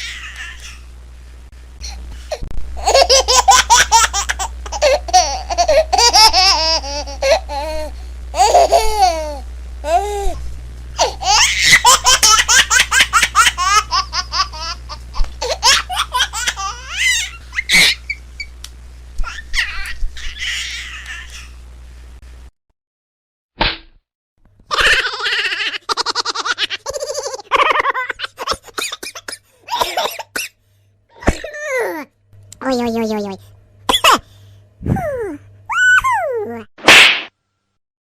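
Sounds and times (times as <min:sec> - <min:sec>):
baby laughing and squealing: 0:00.0 - 0:00.9, 0:02.8 - 0:10.4, 0:11.0 - 0:18.5, 0:19.2 - 0:21.6, 0:24.7 - 0:30.0, 0:34.9 - 0:36.7.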